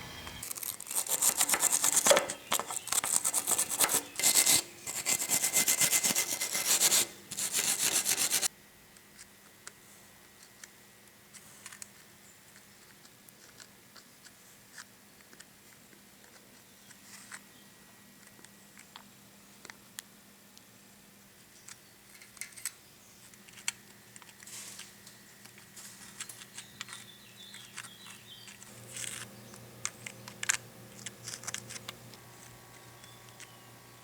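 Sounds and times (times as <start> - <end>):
scraping strokes: 0.4 - 8.5.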